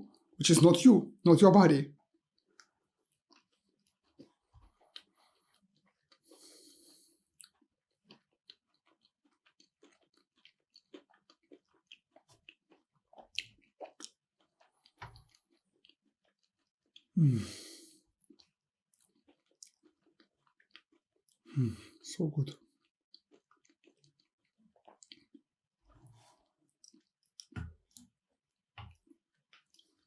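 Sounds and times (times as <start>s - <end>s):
close chewing of food: 2.0s - 30.0s
breath: 5.1s - 5.6s, 6.2s - 7.2s.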